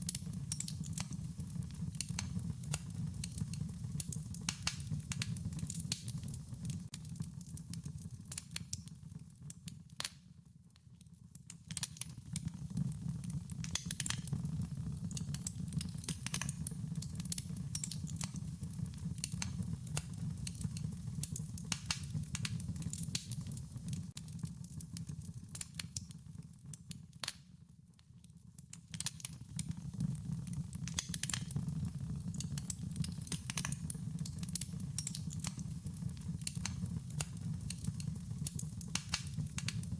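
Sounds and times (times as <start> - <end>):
campfire crackling and popping: 0.0 - 10.2, 11.3 - 27.5, 28.6 - 39.9.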